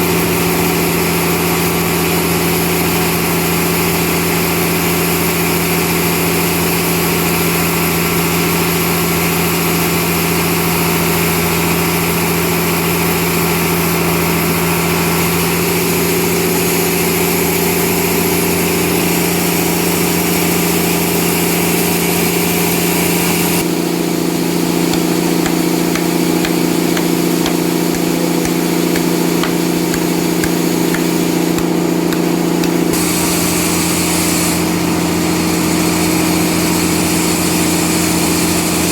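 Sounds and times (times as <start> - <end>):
sawmill saw cutting wood: 24.3 - 34.6.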